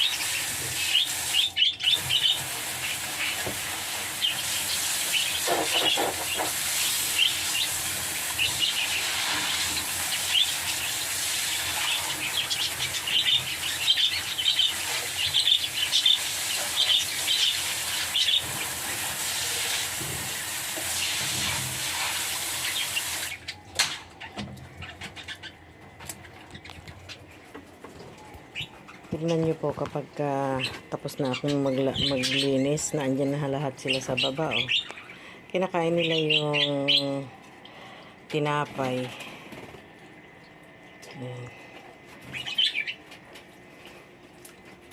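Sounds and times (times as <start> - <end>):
lovebirds chirping: 28.0 - 39.0.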